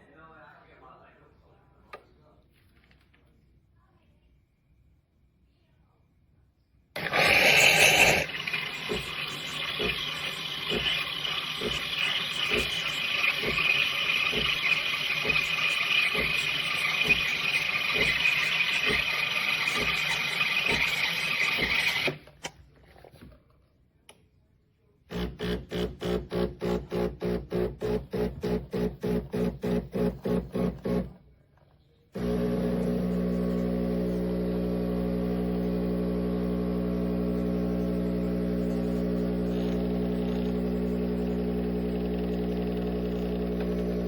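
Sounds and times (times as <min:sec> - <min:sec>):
espresso machine hissing: 0:07.0 - 0:22.2, 0:25.1 - 0:31.1, 0:32.2 - 0:44.0.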